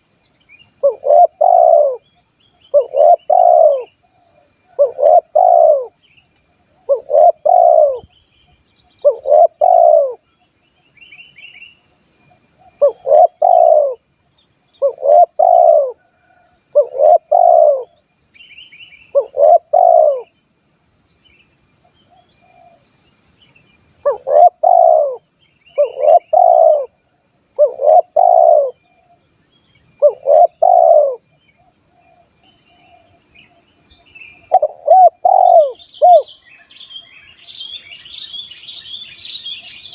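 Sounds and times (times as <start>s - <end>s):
faint bird chirps: 0.0s - 39.9s
high insect drone: 0.0s - 39.9s
dove cooing: 0.8s - 2.0s, 2.7s - 6.0s, 6.8s - 8.1s, 9.0s - 10.2s, 12.6s - 14.0s, 14.8s - 18.0s, 19.1s - 20.3s, 24.0s - 26.9s, 27.6s - 29.0s, 30.0s - 31.3s, 34.3s - 36.3s.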